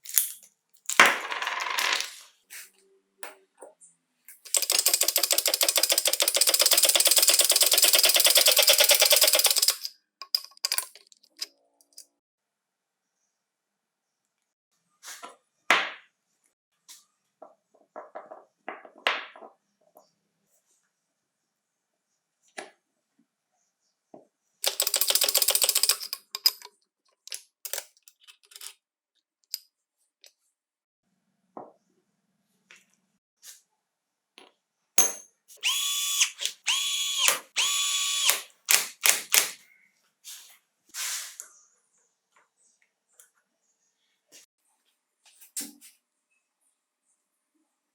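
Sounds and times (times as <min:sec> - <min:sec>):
ratchet clicking: 0:04.5 - 0:11.0, 0:24.6 - 0:26.6, 0:35.6 - 0:39.6
metal parts clicking and knocking: 0:04.5 - 0:12.1, 0:24.6 - 0:28.8
small power tool motor whining: 0:35.6 - 0:38.5.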